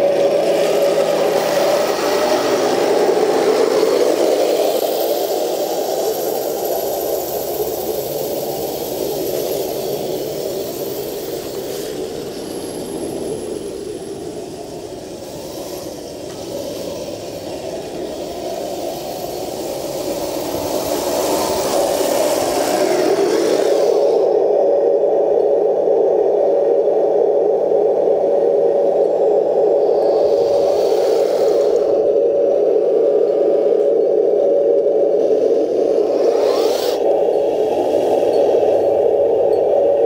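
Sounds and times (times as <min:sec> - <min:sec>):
electric motor whirring: 0:35.2 - 0:38.8.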